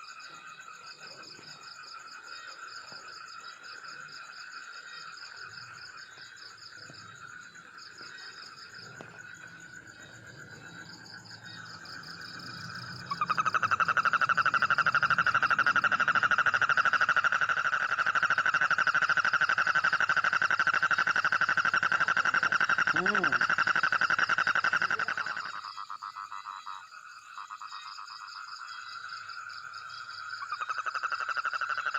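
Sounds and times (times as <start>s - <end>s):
insects chirping: 0.0s - 31.9s
frog pulsed trill: 8.5s - 25.7s.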